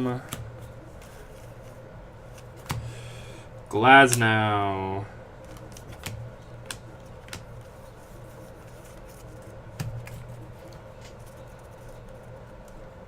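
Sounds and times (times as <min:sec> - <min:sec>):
steady low hum: 0:00.0 - 0:13.0
cards being flipped through: 0:00.2 - 0:03.2, 0:05.4 - 0:12.8.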